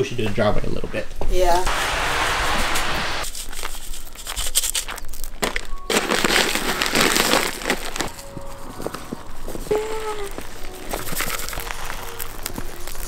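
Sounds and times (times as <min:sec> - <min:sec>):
steady hiss: 0:01.4 - 0:04.1
rock salt crunching on snow: 0:01.7 - 0:13.0.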